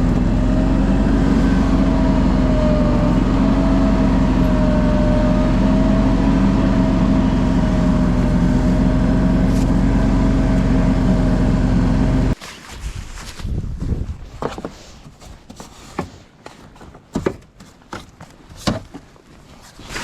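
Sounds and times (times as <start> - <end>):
engine running steadily: 0.0 - 12.4.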